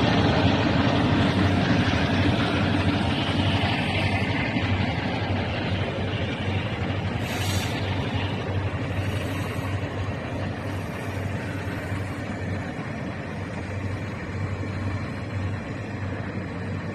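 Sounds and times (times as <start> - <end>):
train wheels rumbling on rails: 0.0 - 16.9.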